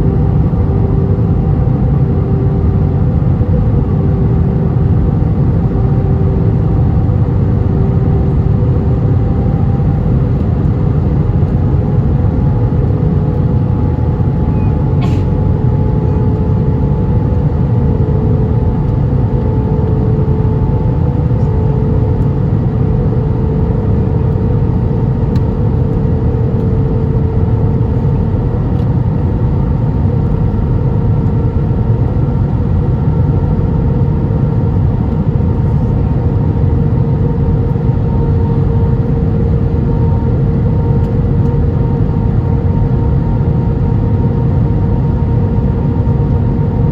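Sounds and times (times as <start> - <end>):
airplane cabin engine rumble: 0.0 - 46.9
faint rising engine tone: 5.7 - 17.0.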